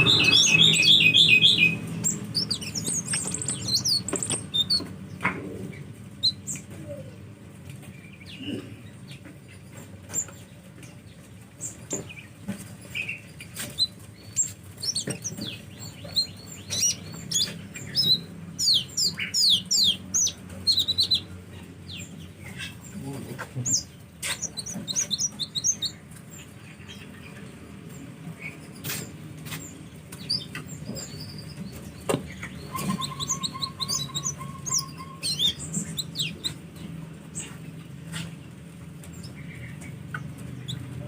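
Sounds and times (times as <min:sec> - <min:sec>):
birds chirping and twittering: 0:00.0 - 0:41.0.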